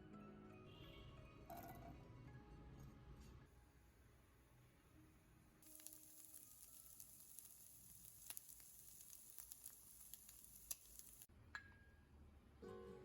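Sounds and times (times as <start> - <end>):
food sizzling in oil: 5.6 - 11.3
oil crackling and popping: 5.6 - 11.3.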